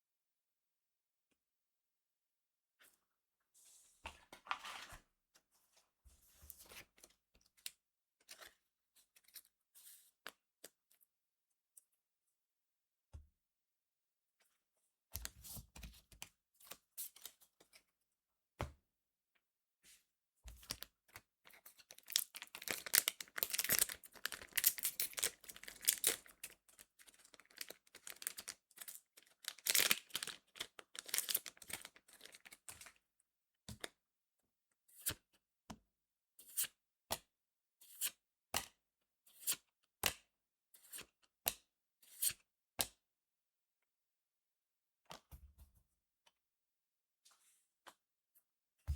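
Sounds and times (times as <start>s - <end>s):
foil pack tearing and crinkling: 22.0s - 26.4s, 27.4s - 32.4s.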